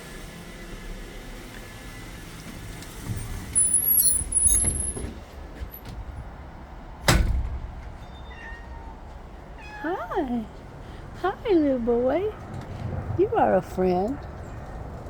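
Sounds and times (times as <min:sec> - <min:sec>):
door squealing: 0:03.2 - 0:05.1.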